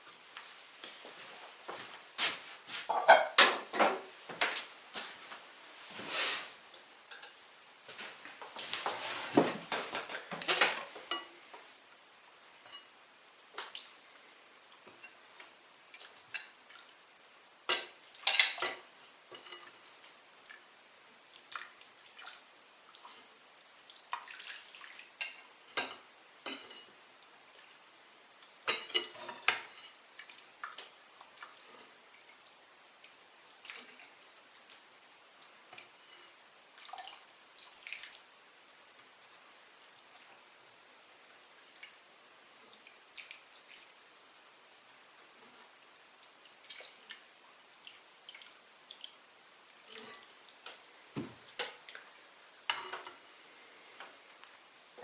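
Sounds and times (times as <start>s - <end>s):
dishes and cutlery clattering: 2.9s - 4.1s, 7.1s - 7.7s, 17.7s - 20.2s, 25.2s - 26.9s, 28.7s - 30.0s, 52.7s - 53.2s.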